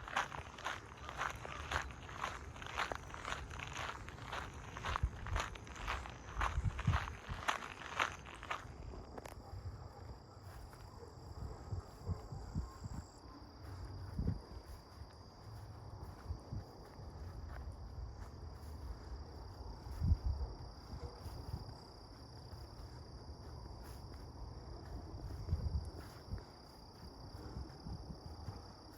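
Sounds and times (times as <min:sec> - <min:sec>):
insects trilling: 0:00.0 - 0:08.8.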